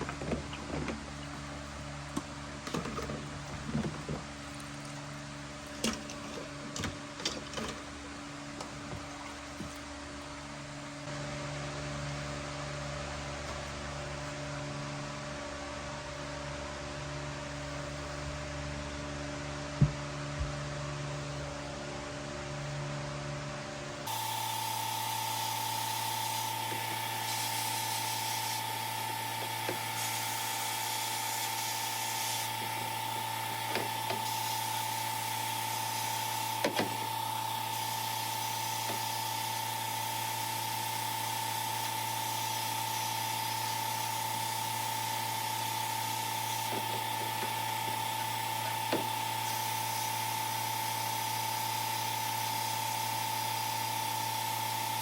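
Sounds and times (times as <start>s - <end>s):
small power tool running: 24.1s - 55.0s.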